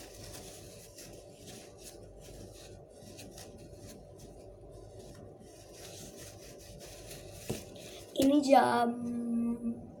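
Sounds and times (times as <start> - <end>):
soft rubbing and rustling: 0.0 - 9.4
steady low hum: 0.0 - 10.0.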